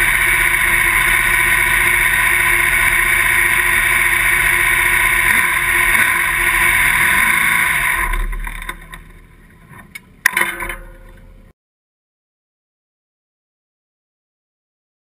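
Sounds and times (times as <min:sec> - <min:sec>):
car engine running: 0:00.0 - 0:10.3.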